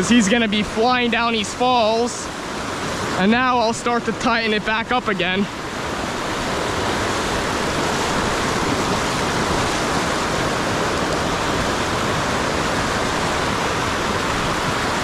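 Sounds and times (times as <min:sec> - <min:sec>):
river water rushing over rapids: 0:00.0 - 0:15.0.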